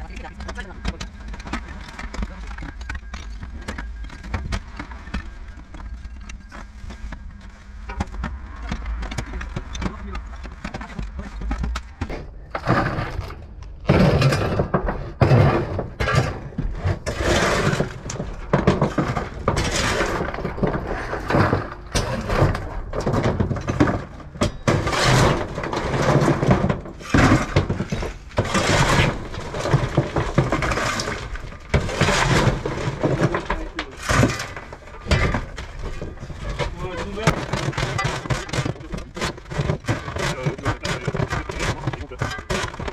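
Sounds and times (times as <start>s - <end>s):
rubble clattering: 0.0s - 42.9s
shovel scraping steel: 24.6s - 42.9s.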